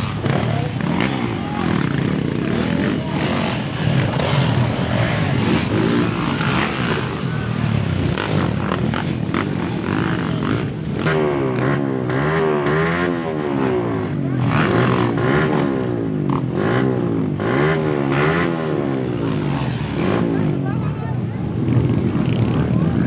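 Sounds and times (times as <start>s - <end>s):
dirt bike engine revving: 0.0s - 20.7s.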